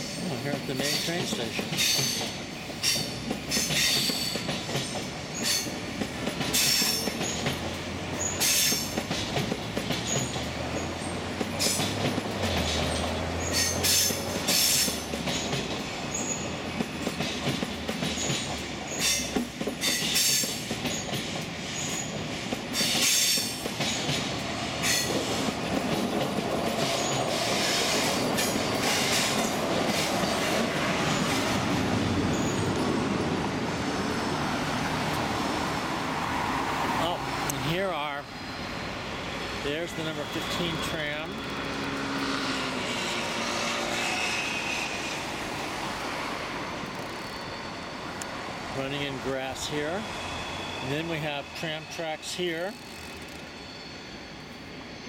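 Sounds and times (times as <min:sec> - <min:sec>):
train wheels clacking over rail joints: 0:00.0 - 0:32.9, 0:46.7 - 0:50.1
wheels squealing: 0:00.0 - 0:33.3, 0:34.0 - 0:55.0
train rolling rumble: 0:00.0 - 0:55.0.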